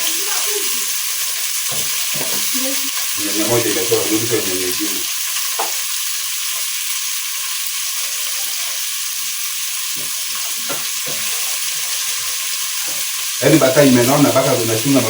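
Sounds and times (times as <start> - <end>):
meat sizzling in fat: 0.0 - 15.0.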